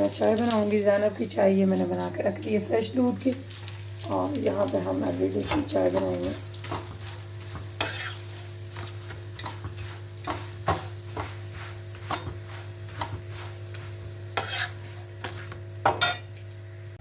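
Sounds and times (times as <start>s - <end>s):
food sizzling in a pan: 0.0s - 17.0s
metal utensil scraping a pan: 5.3s - 16.3s.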